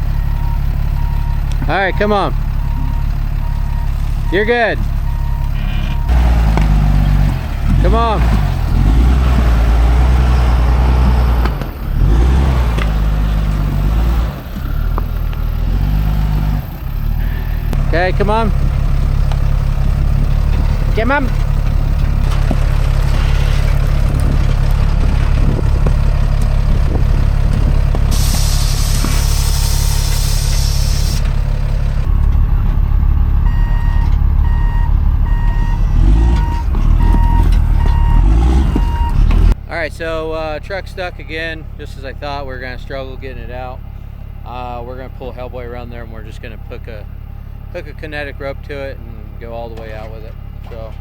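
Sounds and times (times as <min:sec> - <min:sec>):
backup alarm beeping: 0:00.0 - 0:06.4, 0:32.0 - 0:39.4
truck engine rumbling: 0:00.0 - 0:51.0.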